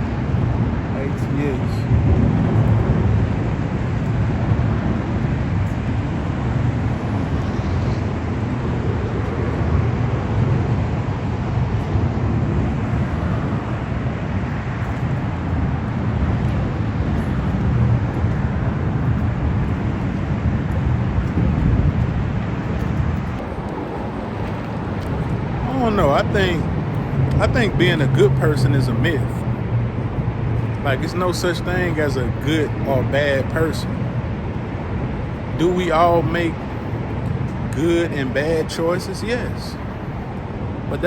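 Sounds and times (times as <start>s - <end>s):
steady low-pitched noise: 0.0s - 41.0s.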